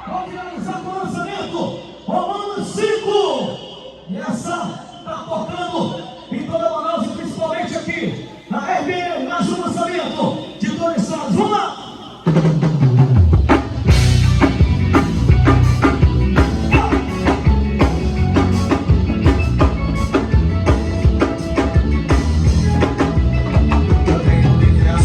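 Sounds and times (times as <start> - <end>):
live band playing upbeat song: 12.2 - 25.0
drum kit beat: 12.3 - 25.0
loud bass line: 12.4 - 25.0.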